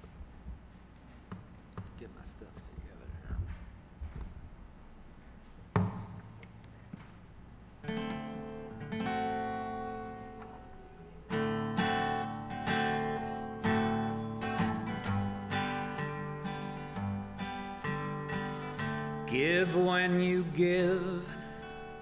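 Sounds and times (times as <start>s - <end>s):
sharp knock: 5.7s - 6.3s
acoustic guitar strumming: 7.8s - 22.0s.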